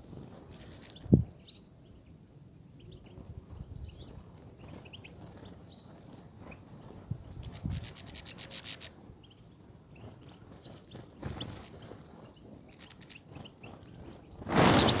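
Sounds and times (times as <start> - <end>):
loud burst of noise: 14.5 - 15.0.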